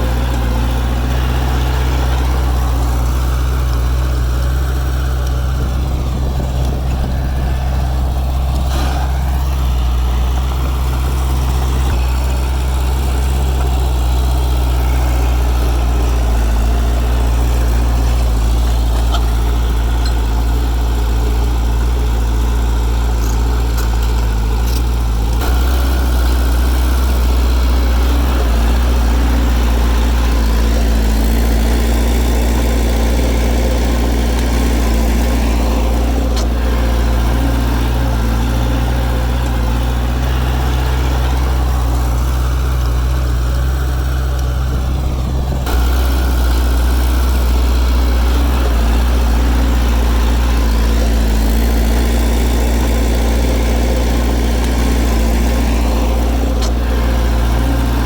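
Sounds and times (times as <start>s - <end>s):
bulldozer diesel engine droning: 0.0s - 58.0s.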